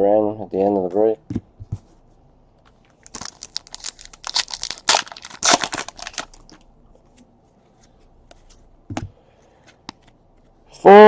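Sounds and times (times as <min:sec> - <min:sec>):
plastic wrapper crinkling: 0:03.0 - 0:06.7.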